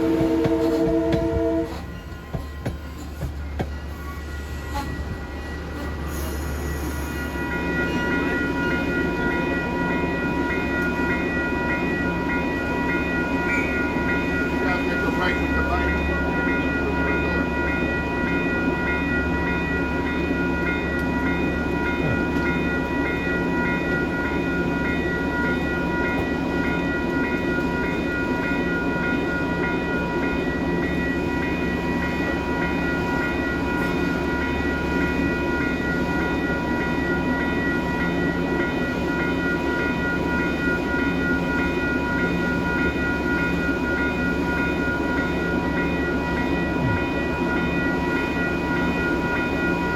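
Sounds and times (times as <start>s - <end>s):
diesel train rumbling: 0.0s - 49.9s.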